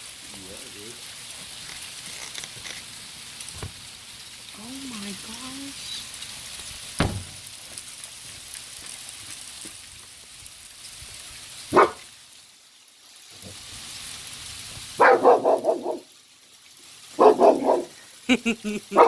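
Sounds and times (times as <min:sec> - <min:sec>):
hail falling with steady hiss: 0:00.0 - 0:19.0
dog barking: 0:11.7 - 0:12.1, 0:15.0 - 0:16.1, 0:17.2 - 0:18.0.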